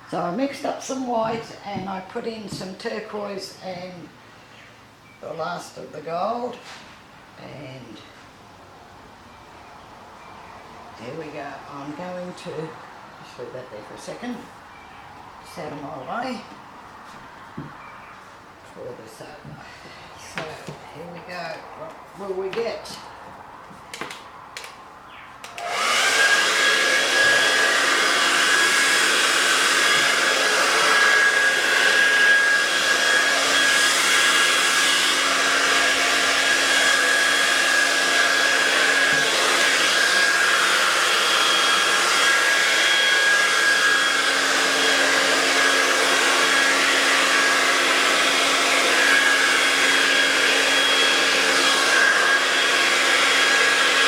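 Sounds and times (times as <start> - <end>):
hair dryer running: 0.0 - 3.5, 25.4 - 54.0.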